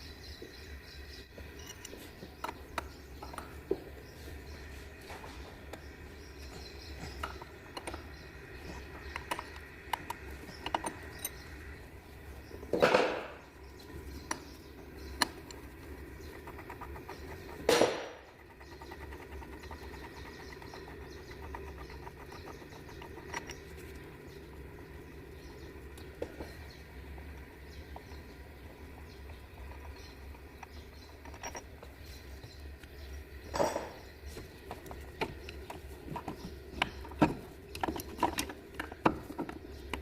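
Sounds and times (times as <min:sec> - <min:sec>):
workshop hum: 0:00.0 - 0:40.0
hand tools clinking on engine: 0:01.5 - 0:03.6, 0:08.7 - 0:11.6, 0:29.7 - 0:32.0.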